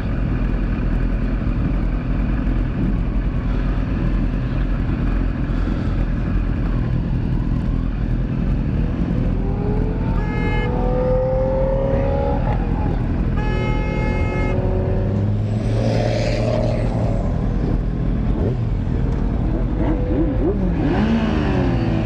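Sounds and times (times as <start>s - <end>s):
motorcycle engine idling: 0.0s - 8.3s
traffic noise: 0.0s - 22.0s.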